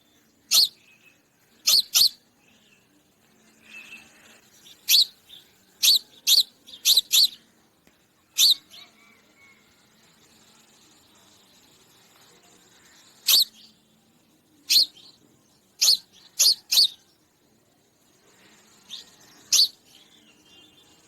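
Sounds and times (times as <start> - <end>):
sparrow chirping: 0.0 - 2.9, 3.5 - 7.5, 8.3 - 9.0, 12.8 - 13.9, 14.6 - 17.4, 18.3 - 21.0.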